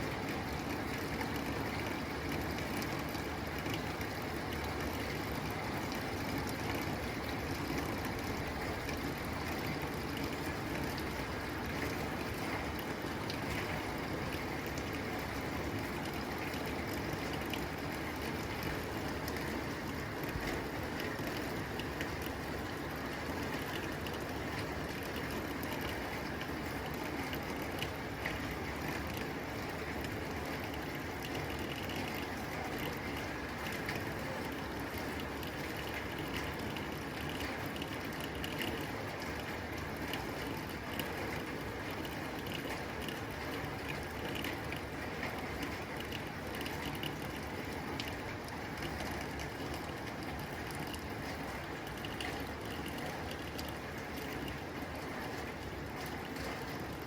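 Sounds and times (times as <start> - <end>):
rain on a tin roof: 0.0 - 57.0.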